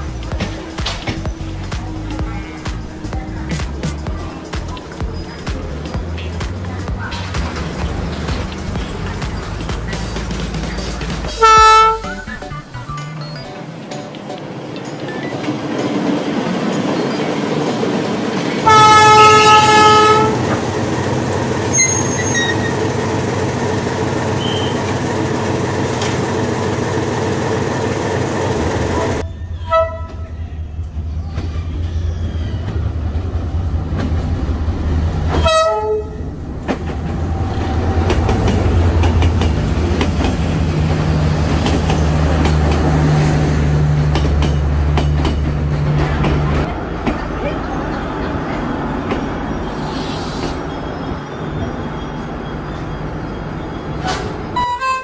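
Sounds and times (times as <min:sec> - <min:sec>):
rolling train rumble: 0:00.0 - 0:55.0
train horn: 0:11.3 - 0:12.1, 0:18.6 - 0:20.5, 0:29.5 - 0:30.4, 0:35.3 - 0:36.2, 0:54.5 - 0:55.0.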